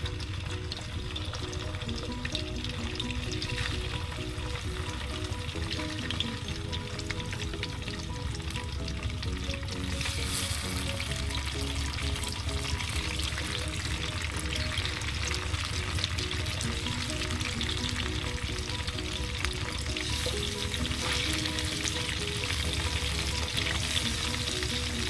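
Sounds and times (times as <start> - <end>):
fish sizzling in hot oil: 0.0 - 25.0.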